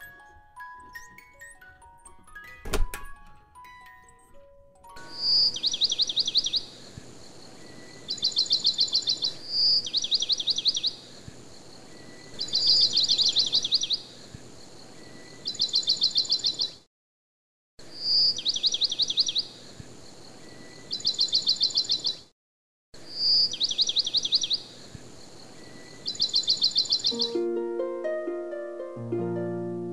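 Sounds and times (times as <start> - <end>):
bird calling with chipping notes: 3.6 - 11.1, 12.0 - 14.3, 15.0 - 16.8, 23.1 - 27.4.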